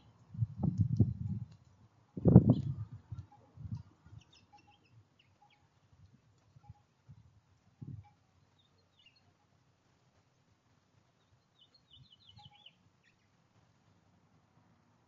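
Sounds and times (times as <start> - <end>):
small bird chirps: 4.1 - 5.8, 8.0 - 9.4, 11.2 - 13.4.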